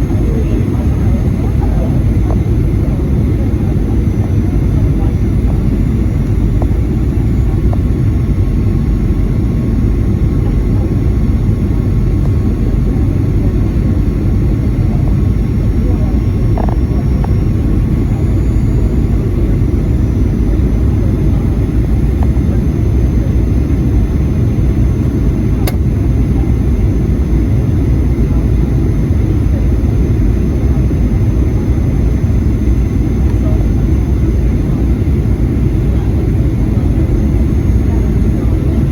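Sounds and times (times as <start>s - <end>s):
airplane cabin engine rumble: 0.0s - 38.9s
sharp click: 25.6s - 25.8s.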